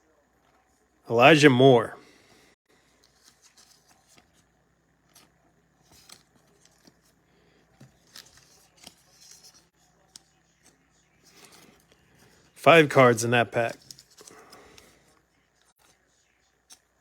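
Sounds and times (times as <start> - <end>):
trading cards and wrapper rustling: 2.9 - 4.5, 5.1 - 15.0.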